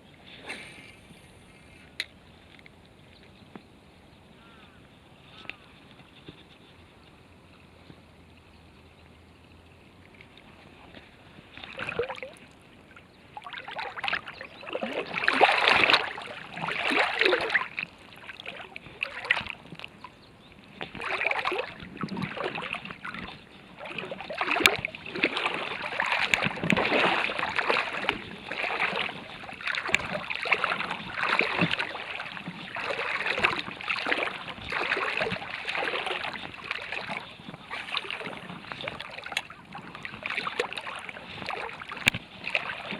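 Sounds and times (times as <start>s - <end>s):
footsteps crunching on riverbank: 13.7s - 42.9s.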